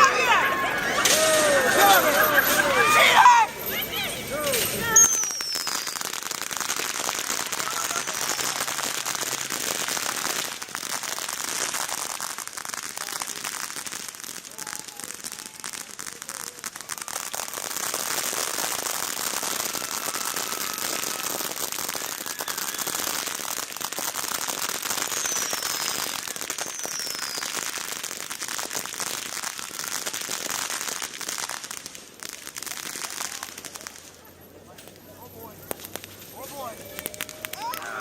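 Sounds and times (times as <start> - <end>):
fireworks crackling: 0.0 - 38.0
falling firework whistles: 4.6 - 13.2, 16.4 - 31.7.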